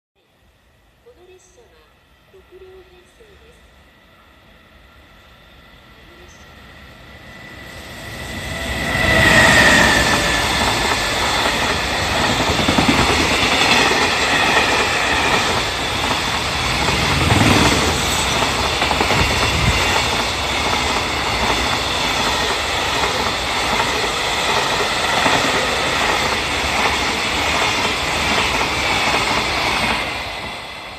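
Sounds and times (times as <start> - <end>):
electric locomotive whine: 0.7 - 30.9
wheel-on-rail rush: 7.0 - 30.9.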